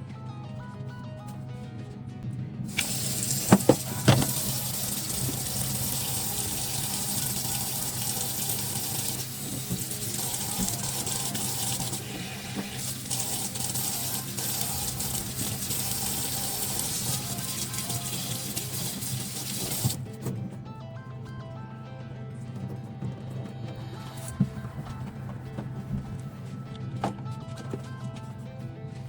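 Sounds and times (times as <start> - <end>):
tap running into sink: 2.7 - 20.0
sharp knocks: 3.5 - 4.4.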